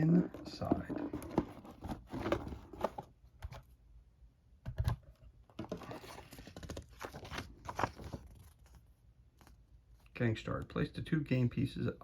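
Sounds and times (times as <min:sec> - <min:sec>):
cardboard box clicks and rustles: 0:00.6 - 0:03.6.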